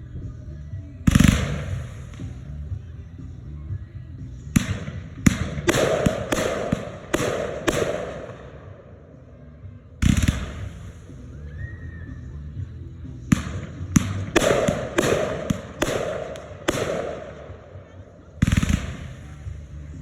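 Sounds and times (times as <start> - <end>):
fireworks bangs: 1.0 - 2.9, 4.5 - 8.9, 10.0 - 11.7, 13.3 - 20.0.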